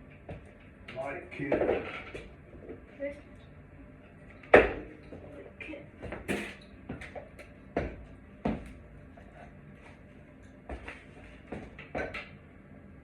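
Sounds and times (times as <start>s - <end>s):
fan parts knocking and clattering: 0.3s - 2.8s, 6.0s - 8.7s, 10.7s - 12.4s.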